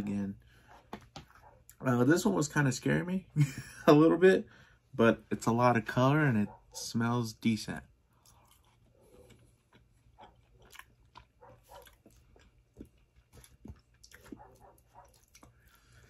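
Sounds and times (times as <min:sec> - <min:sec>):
chewing food: 0:08.0 - 0:16.0.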